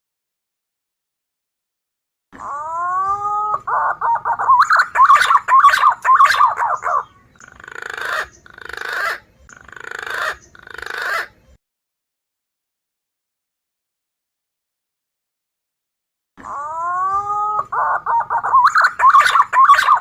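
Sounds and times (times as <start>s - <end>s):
warbling pigeon whistles: 2.6s - 7.1s, 16.5s - 20.0s.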